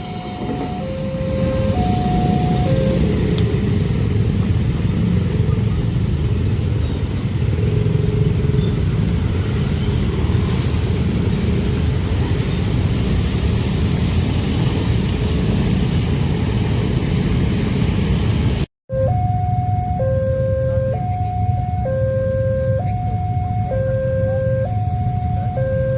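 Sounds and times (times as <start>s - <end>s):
two-tone crossing alarm: 0.0s - 3.8s, 18.9s - 25.9s.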